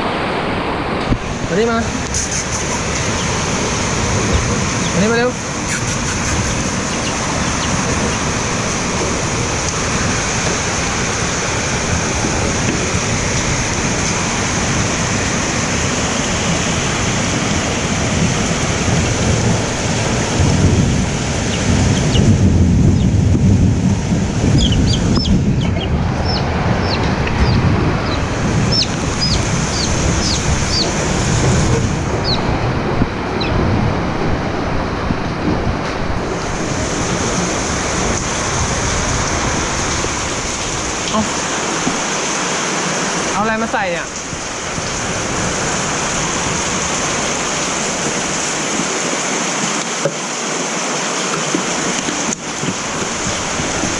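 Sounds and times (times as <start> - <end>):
heavy rain falling: 0.0 - 53.9
low rumble: 6.3 - 41.1.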